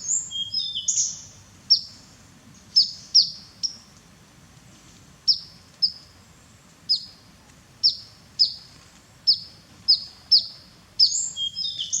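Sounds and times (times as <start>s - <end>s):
small bird chirping: 0.0s - 3.9s, 5.2s - 6.1s, 6.9s - 7.2s, 7.8s - 12.0s.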